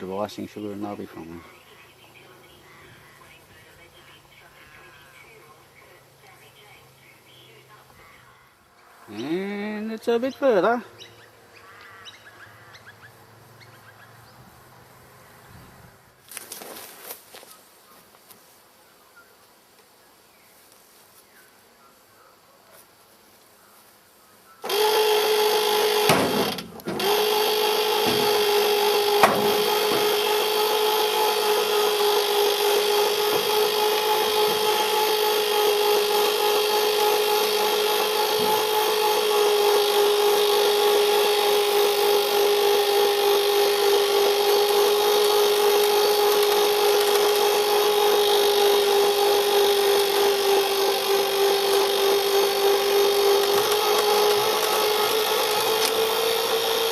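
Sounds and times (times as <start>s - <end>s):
electric winch motor whining: 24.6s - 56.9s.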